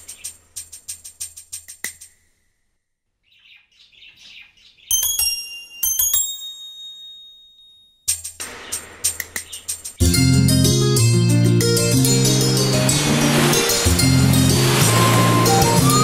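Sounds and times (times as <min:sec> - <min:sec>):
small bird chirping: 0:00.0 - 0:01.0, 0:03.1 - 0:05.1, 0:08.6 - 0:10.0
ticking music beat: 0:00.0 - 0:02.4, 0:08.1 - 0:16.0.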